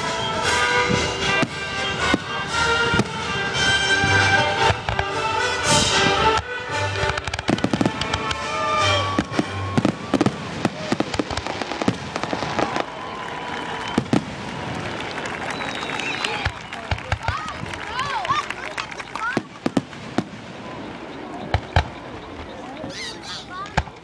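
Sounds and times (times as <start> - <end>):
music playing: 0.0 - 10.4
fireworks bangs and crackles: 0.0 - 22.9, 23.6 - 24.0.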